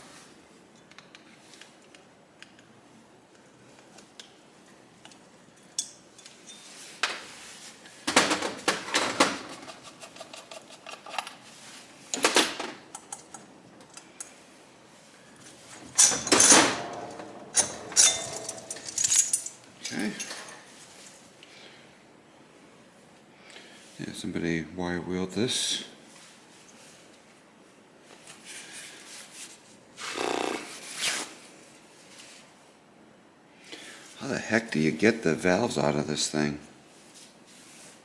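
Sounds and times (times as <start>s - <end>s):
metal tools clinking on workbench: 5.6s - 6.8s, 15.7s - 20.7s.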